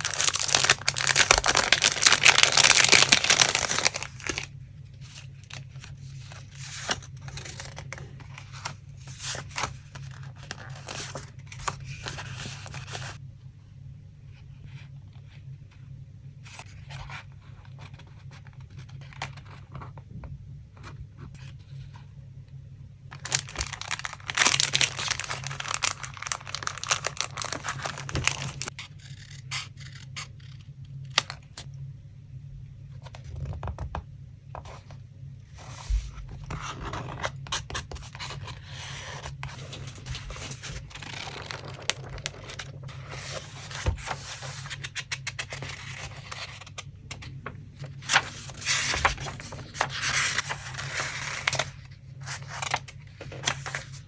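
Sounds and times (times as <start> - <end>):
paper scraping rustling and tearing: 0.0 - 4.5, 23.2 - 30.1, 38.1 - 46.8, 47.8 - 54.0
low steady hum: 0.0 - 54.0.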